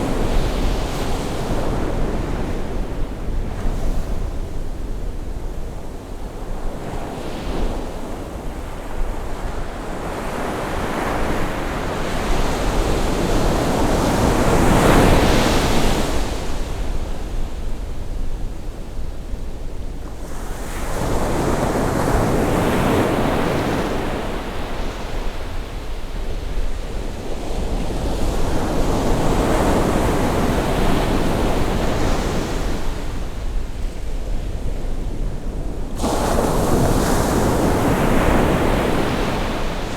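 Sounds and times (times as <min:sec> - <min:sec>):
sea waves breaking: 0:35.9 - 0:39.9.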